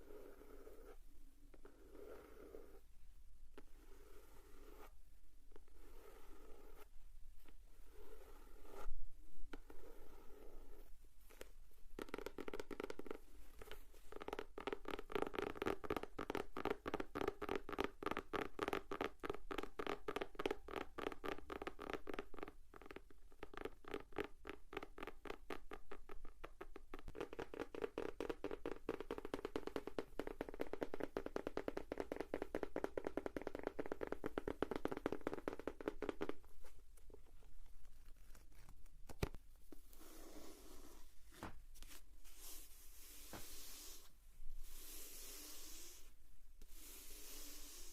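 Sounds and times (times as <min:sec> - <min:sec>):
fingers tapping on notebook: 0:12.0 - 0:36.5.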